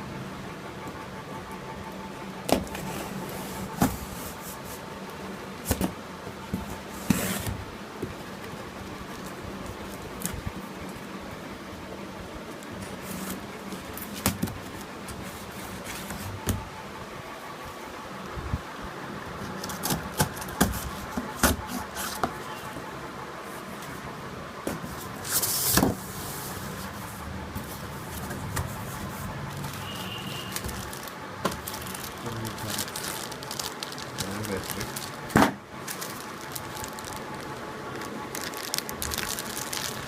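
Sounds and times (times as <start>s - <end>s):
steady background hum: 0.0s - 40.0s
packaging rustle: 27.6s - 40.0s.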